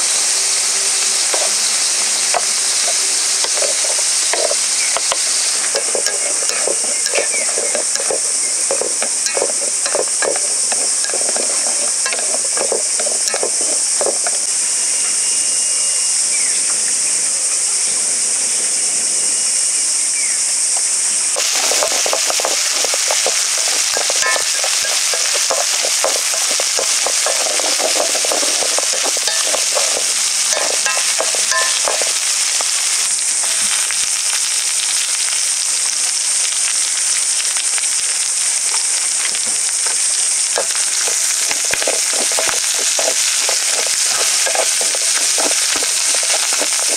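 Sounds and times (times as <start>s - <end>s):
food sizzling in a pan: 0.0s - 17.9s, 19.5s - 46.9s
utensil stirring and scraping: 2.3s - 14.4s, 21.4s - 32.9s, 40.6s - 46.9s.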